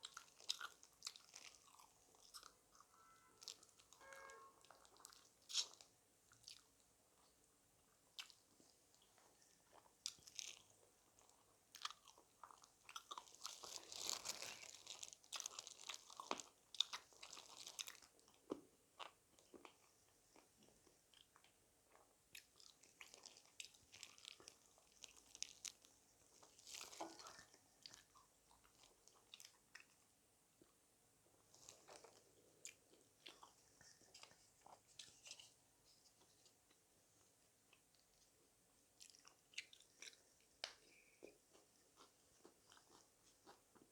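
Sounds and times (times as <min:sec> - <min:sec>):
crunching fried chicken: 0:00.0 - 0:07.4, 0:08.2 - 0:30.0
quiet chewing: 0:00.0 - 0:43.9.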